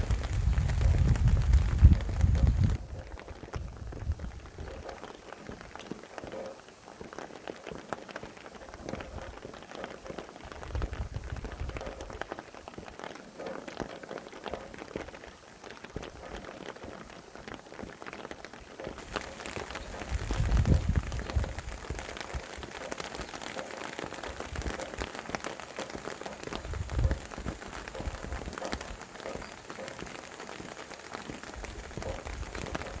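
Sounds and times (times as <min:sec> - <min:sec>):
gusts of wind rumbling: 0:00.0 - 0:04.9, 0:10.4 - 0:12.2, 0:19.0 - 0:22.8, 0:26.5 - 0:29.6, 0:31.5 - 0:33.0
rain drops pattering: 0:00.0 - 0:33.0.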